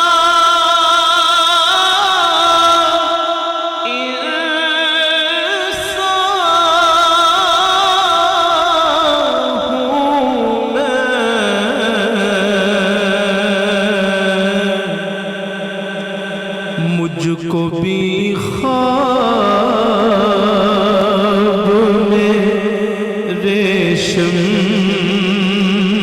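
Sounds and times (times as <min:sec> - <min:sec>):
man singing melismatic notes: 0:00.0 - 0:26.0
vocal drone: 0:01.6 - 0:26.0.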